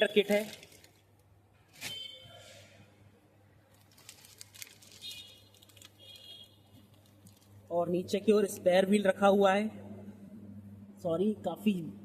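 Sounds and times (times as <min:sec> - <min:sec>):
low steady hum: 0:06.6 - 0:12.0.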